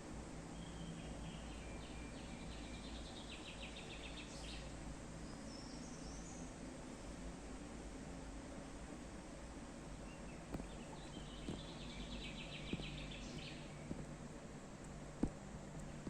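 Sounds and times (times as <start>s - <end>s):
steady background hiss: 0.0s - 16.0s
bird chattering song: 10.1s - 14.0s.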